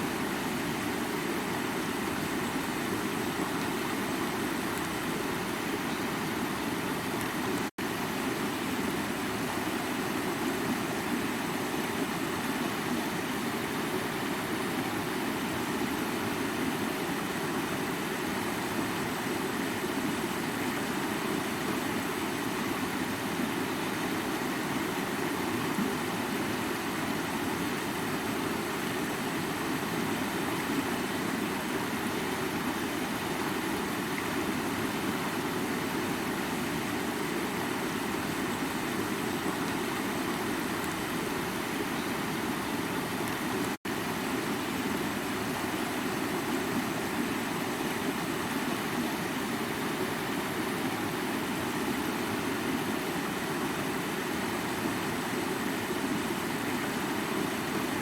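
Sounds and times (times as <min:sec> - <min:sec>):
stream splashing over rocks: 0:00.0 - 0:58.0.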